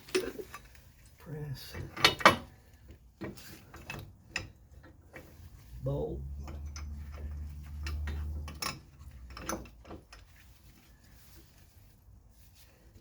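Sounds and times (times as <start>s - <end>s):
steel parts clinking and scraping: 6.4s - 11.5s.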